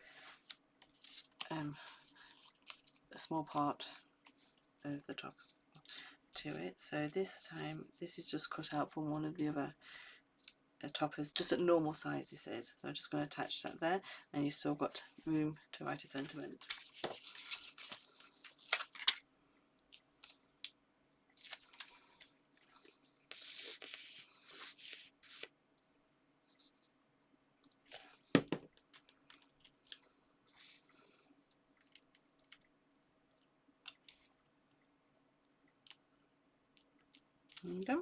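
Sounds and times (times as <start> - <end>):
faint steady hum: 0.0 - 38.0
paper and card rustling: 0.4 - 3.6, 16.1 - 19.2, 23.3 - 25.5.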